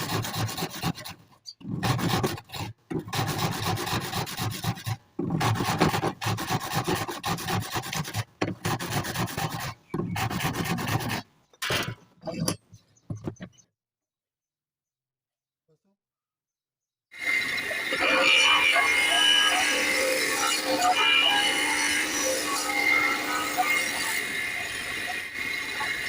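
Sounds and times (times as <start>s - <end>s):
rasp filing strokes: 0.0s - 11.3s.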